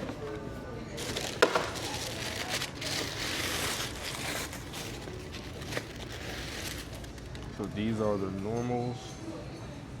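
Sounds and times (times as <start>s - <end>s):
packing paper rustling: 1.0s - 7.7s.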